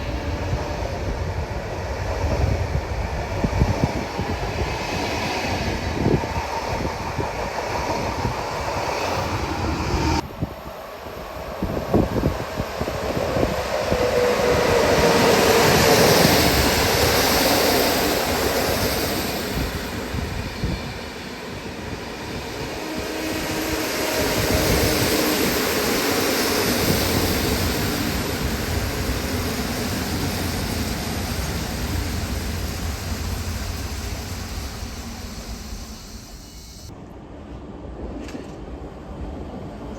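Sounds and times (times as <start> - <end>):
train passing rumble: 0.0 - 39.9.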